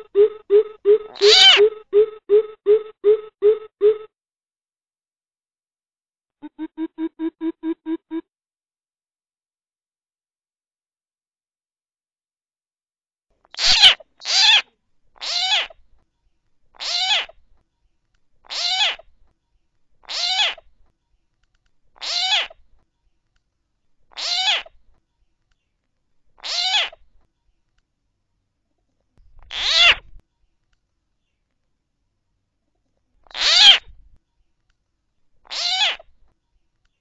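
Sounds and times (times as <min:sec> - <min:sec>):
coucal harsh calls: 0:00.0 - 0:04.0, 0:33.3 - 0:33.8.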